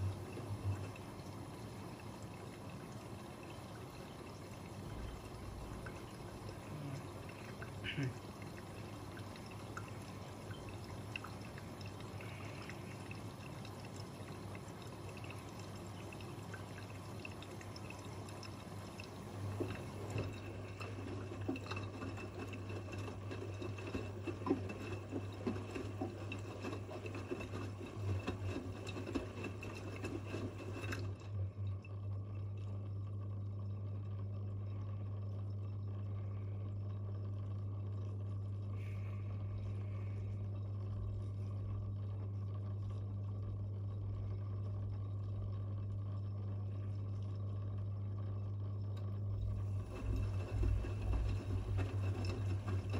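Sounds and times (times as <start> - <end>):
water splashing in washing machine drum: 0.0 - 33.0, 49.0 - 52.9
washing machine low hum: 0.0 - 52.9.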